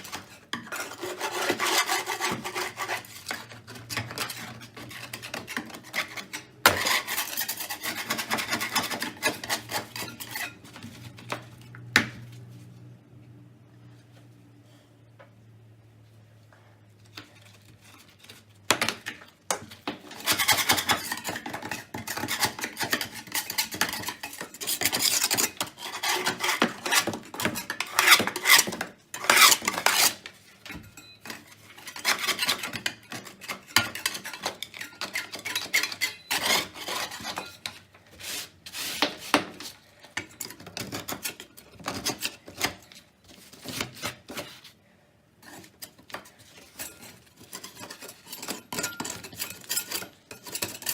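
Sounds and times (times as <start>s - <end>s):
hand scrubbing a hard surface: 38.1s - 39.8s.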